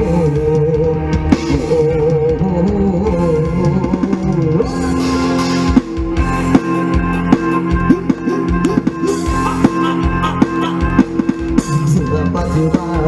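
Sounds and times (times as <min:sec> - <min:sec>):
bass: 0:00.0 - 0:13.0
drum kit beat: 0:00.0 - 0:13.0
pitch-bending melody notes: 0:04.4 - 0:12.9.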